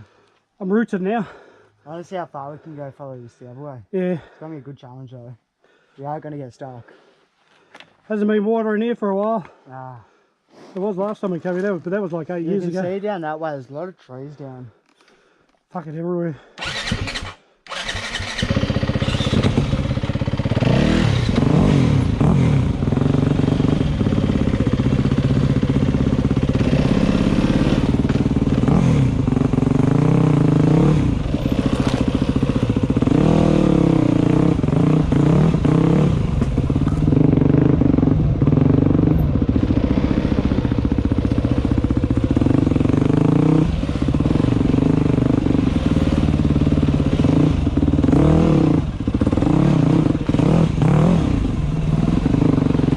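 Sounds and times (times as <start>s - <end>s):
dirt bike engine: 16.6s - 52.9s.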